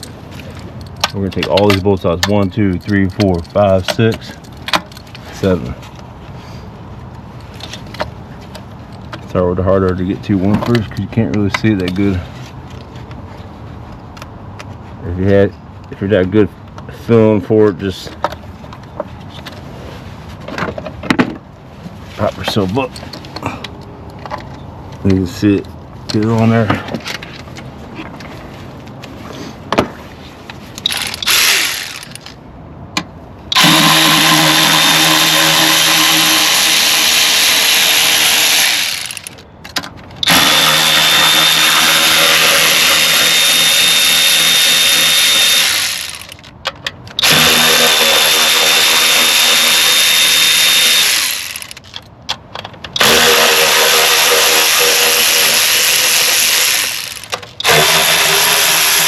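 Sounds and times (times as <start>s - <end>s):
power tool spinning out bolts: 30.8s - 32.3s, 33.5s - 39.4s, 40.2s - 46.5s, 47.2s - 51.9s, 53.0s - 59.0s.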